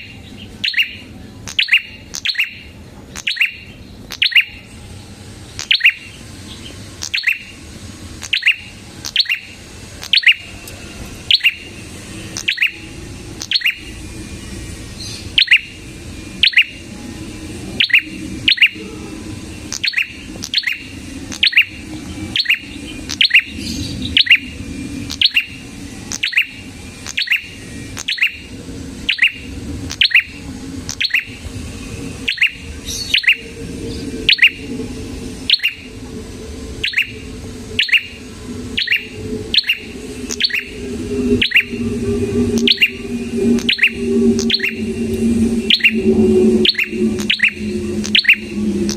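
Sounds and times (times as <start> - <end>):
bird chirping sharply: 0.0 - 4.6, 5.6 - 7.5, 8.2 - 10.4, 12.4 - 13.9, 32.3 - 33.4, 35.5 - 35.9, 37.8 - 38.2, 38.8 - 41.8, 42.4 - 48.9.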